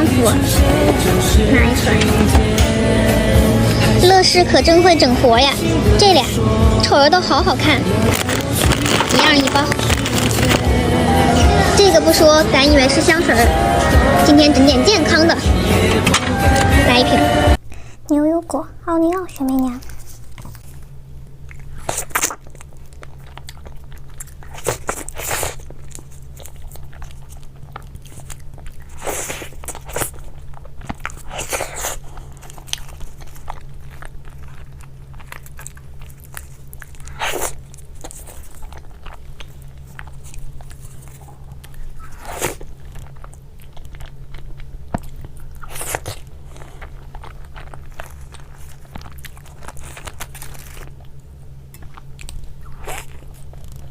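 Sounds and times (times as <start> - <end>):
steady low hum: 0.0 - 53.9
person chewing crunchy food: 5.6 - 12.3, 19.4 - 53.9.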